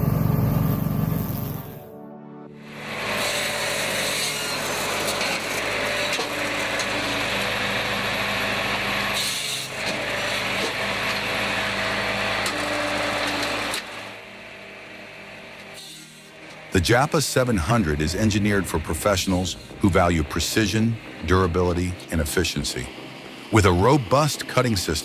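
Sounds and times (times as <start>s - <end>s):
wood-cutting machine cutting wood: 2.6s - 25.0s.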